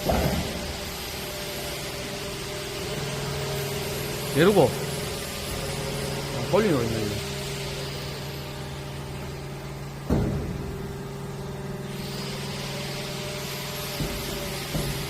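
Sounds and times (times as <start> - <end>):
loud machine clunk: 0.0 - 1.0, 10.0 - 11.0
plate bending machine motor hum: 0.0 - 15.0.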